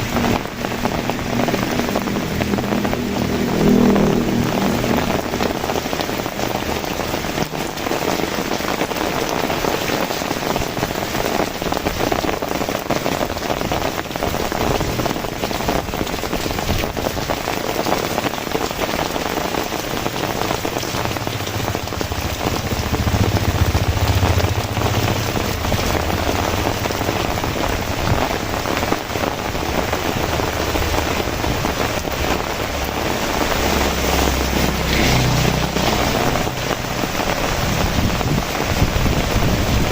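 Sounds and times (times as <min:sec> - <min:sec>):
low rumble: 0:00.0 - 0:08.7, 0:20.1 - 0:39.7
heavy rain pattering: 0:00.0 - 0:39.9.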